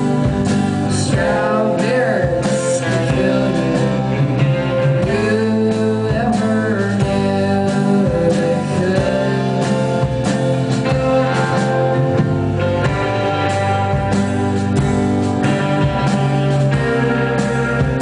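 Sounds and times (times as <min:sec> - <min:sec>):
person singing: 0:00.0 - 0:13.4
guitars: 0:00.0 - 0:18.0
steady drum beat: 0:00.0 - 0:18.0.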